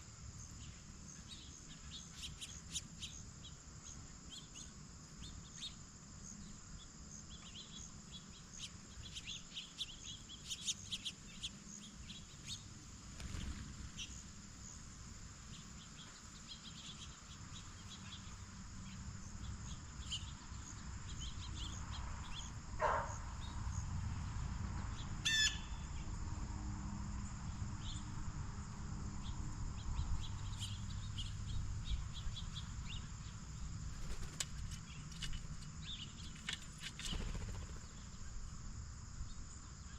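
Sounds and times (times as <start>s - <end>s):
insects chirring: 0.0s - 39.9s
bird chirps: 25.0s - 26.1s.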